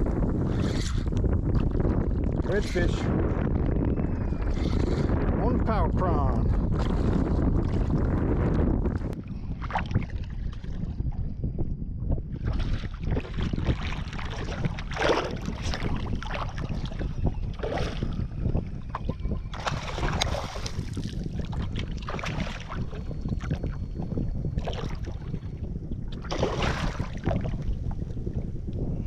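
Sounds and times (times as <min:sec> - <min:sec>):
wind buffeting microphone: 0:00.0 - 0:29.0
water slapping against boat hull: 0:12.4 - 0:23.8, 0:26.1 - 0:28.0.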